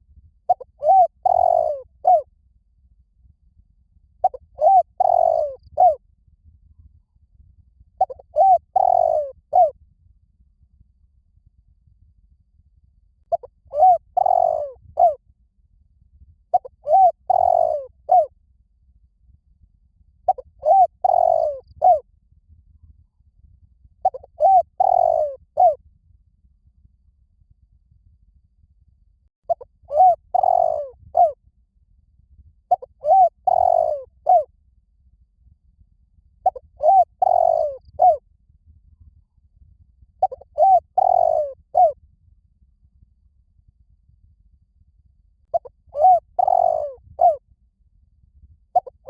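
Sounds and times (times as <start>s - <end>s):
dove cooing: 0.5s - 2.2s, 4.2s - 6.0s, 8.0s - 9.8s, 13.3s - 15.2s, 16.5s - 18.3s, 20.3s - 22.0s, 24.0s - 25.8s, 29.5s - 31.4s, 32.7s - 34.5s, 36.4s - 38.2s, 40.2s - 42.0s, 45.5s - 47.4s, 48.8s - 49.0s.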